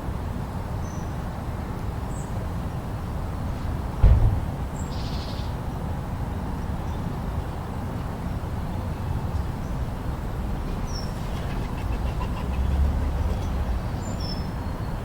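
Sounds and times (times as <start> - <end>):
storm wind rumble: 4.0 - 5.0.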